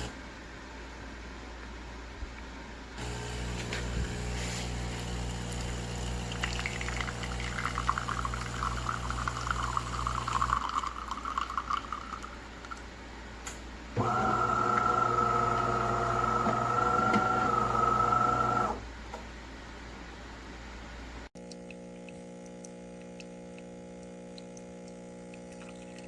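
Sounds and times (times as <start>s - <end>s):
espresso machine pump humming: 3.0s - 12.8s, 14.0s - 18.8s, 21.4s - 26.0s
coffee dripping: 3.0s - 12.9s, 21.4s - 26.0s
coffee pouring into cup: 3.0s - 12.9s, 21.4s - 26.0s.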